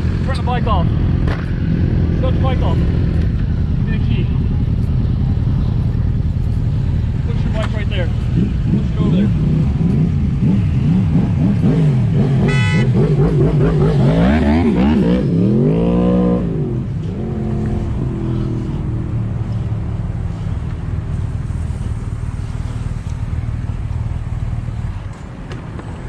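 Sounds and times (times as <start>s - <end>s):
engines revving: 0.0s - 25.4s
road noise: 0.0s - 26.0s
steady engine hum: 0.0s - 26.0s
horn toot: 12.4s - 13.1s.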